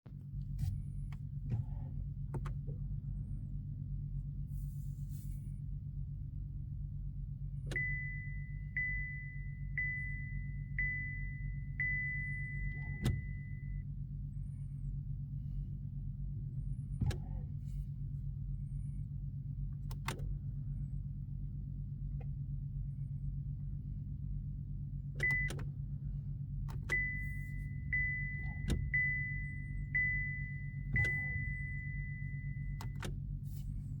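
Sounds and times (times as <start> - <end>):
steady low hum: 0.1 - 34.0
car warning chime beeps: 7.6 - 13.9, 25.2 - 25.7, 26.7 - 33.2.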